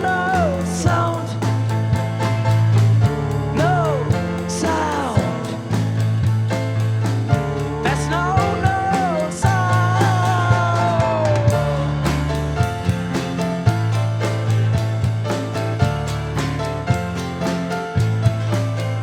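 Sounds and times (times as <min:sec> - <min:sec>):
rock band playing instrumental: 0:00.0 - 0:19.0.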